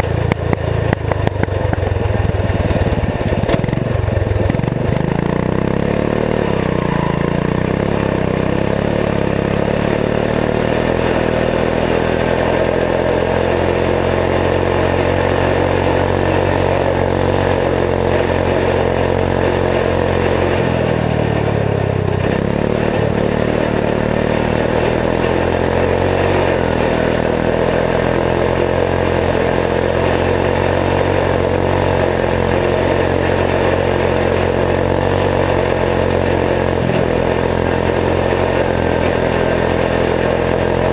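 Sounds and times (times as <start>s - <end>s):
garden tractor engine running: 0.0s - 40.9s.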